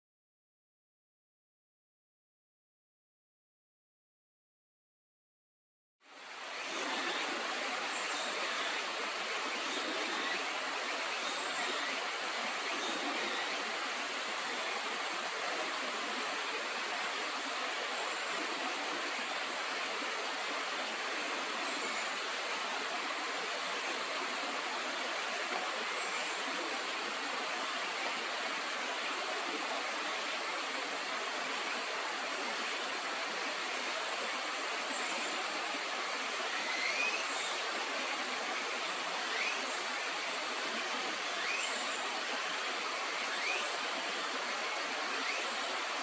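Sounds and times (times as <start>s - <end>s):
flowing river water: 6.0s - 46.0s
thin rising bird chirps: 39.3s - 39.7s, 41.4s - 41.9s.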